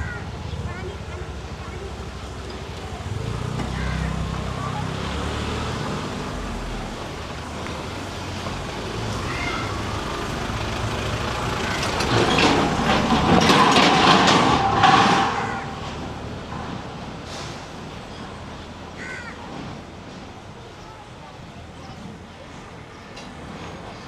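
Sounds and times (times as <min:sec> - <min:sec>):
vehicle engine rumbling passing: 0:00.0 - 0:19.0.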